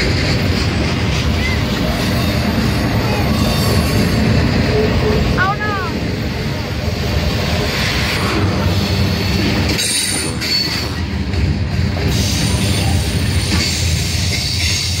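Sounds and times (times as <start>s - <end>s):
train wheels rumbling on rails: 0.0s - 15.0s
high wheel squeal: 1.3s - 4.9s, 8.6s - 11.2s.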